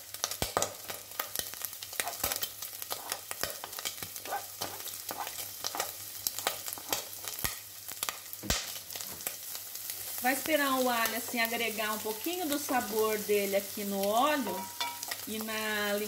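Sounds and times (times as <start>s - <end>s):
meat sizzling in hot oil: 0.0s - 16.0s
wooden spoon scraping cutting board: 2.0s - 3.2s, 4.2s - 7.0s.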